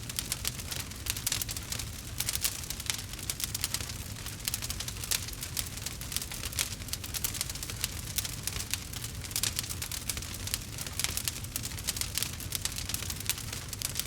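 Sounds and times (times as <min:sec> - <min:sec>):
campfire crackling and popping: 0:00.0 - 0:14.0
low rumble of fire: 0:00.0 - 0:14.0.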